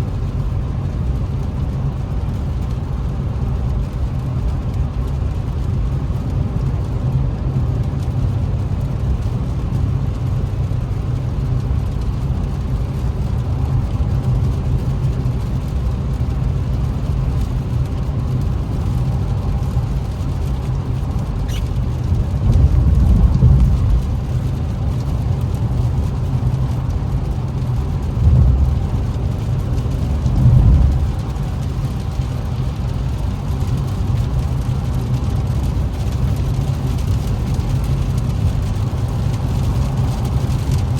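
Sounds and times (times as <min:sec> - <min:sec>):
car cabin engine rumble: 0:00.0 - 0:40.9
rain: 0:00.0 - 0:40.9.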